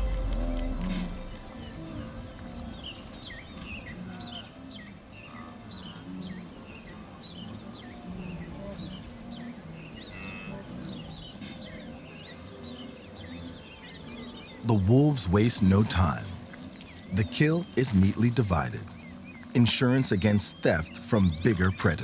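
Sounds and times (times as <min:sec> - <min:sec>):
soft low music: 0:00.0 - 0:04.0, 0:11.0 - 0:22.0
bird chirps: 0:00.0 - 0:07.4, 0:13.2 - 0:22.0.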